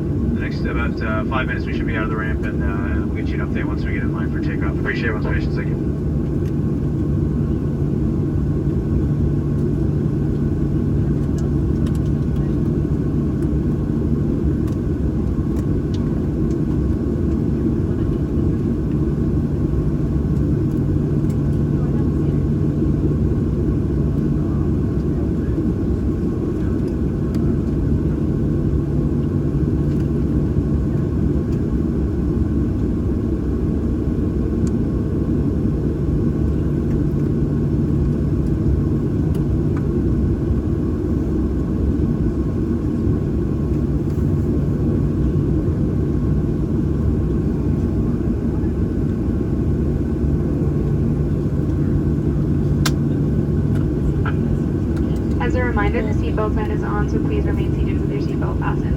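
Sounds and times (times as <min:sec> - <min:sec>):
jet engines idling in cabin: 0:00.0 - 0:58.9
steady low hum: 0:00.0 - 0:58.9.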